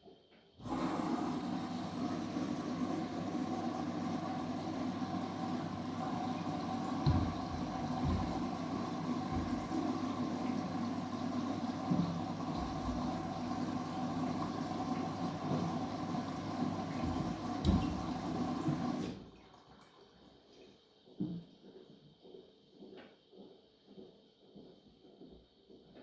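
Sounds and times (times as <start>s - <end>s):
washing machine water rushing: 0.6s - 20.6s.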